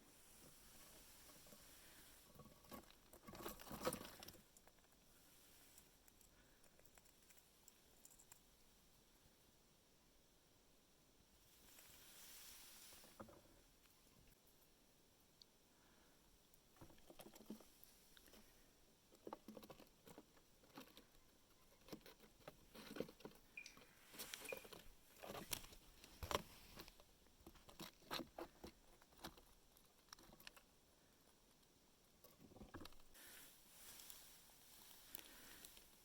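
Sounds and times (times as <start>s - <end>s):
squirrel chewing nuts: 0.3s - 9.1s, 16.4s - 36.0s.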